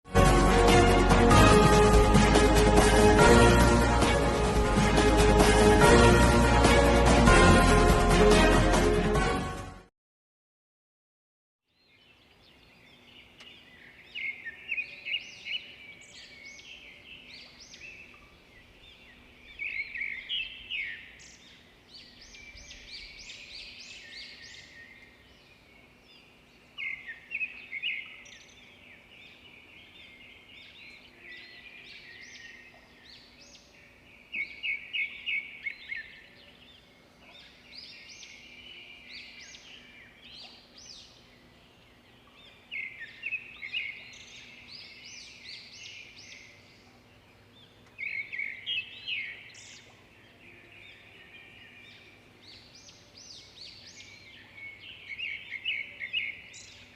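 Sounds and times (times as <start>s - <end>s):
songbirds singing: 11.7s - 56.9s.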